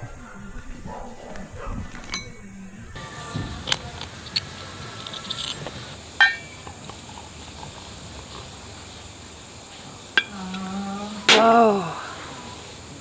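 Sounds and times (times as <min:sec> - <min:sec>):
ringing metal clink: 0:02.1 - 0:07.7, 0:10.1 - 0:11.9
tableware clicking: 0:03.0 - 0:09.3, 0:10.1 - 0:11.9.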